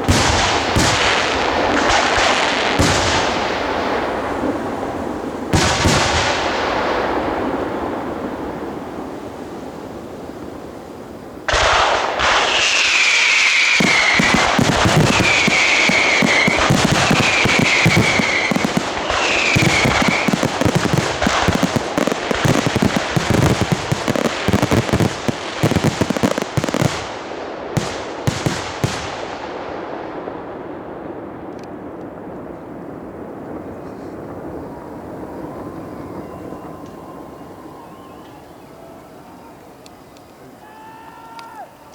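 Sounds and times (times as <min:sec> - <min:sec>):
fireworks bangs and crackling: 0:00.0 - 0:41.9
high falling whistles: 0:12.4 - 0:24.7, 0:34.0 - 0:41.9.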